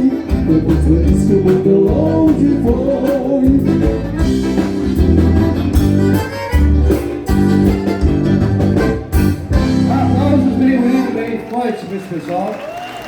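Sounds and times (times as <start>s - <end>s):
guitar chords: 0.0s - 11.4s
button accordion: 0.0s - 11.5s
steady bass beat: 0.3s - 10.9s.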